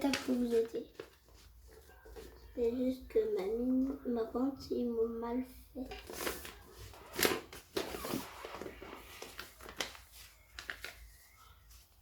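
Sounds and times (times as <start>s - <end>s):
paper rustling and creasing: 0.0s - 2.4s, 6.0s - 12.0s.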